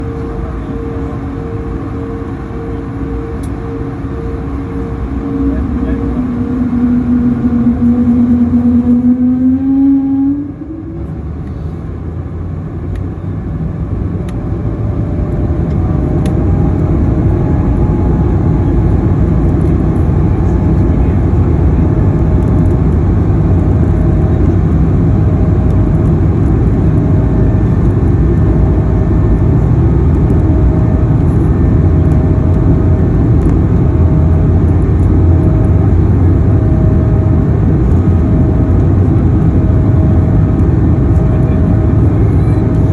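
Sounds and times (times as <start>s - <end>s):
faint high tone: 0.0s - 11.1s
whale-like sagging tone: 0.0s - 11.4s
jet engine rumble: 0.0s - 42.9s.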